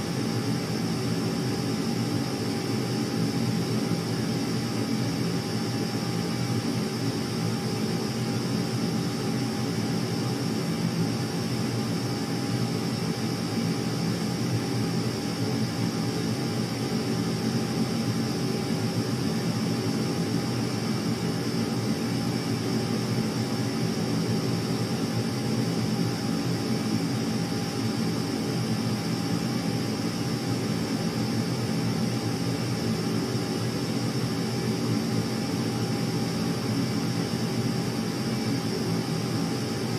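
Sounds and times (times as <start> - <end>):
aircraft engine drone: 0.0 - 39.9.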